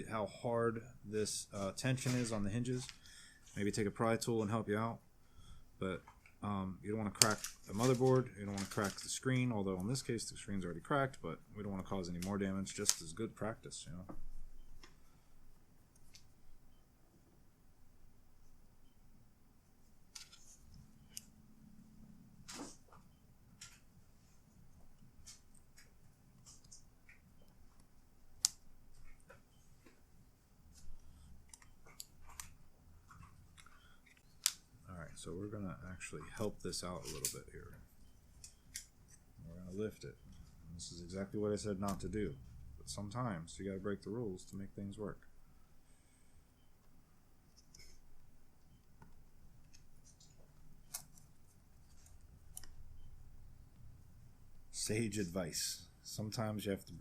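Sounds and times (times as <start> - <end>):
laptop parts clicking: 31.0 - 34.7, 48.6 - 53.1.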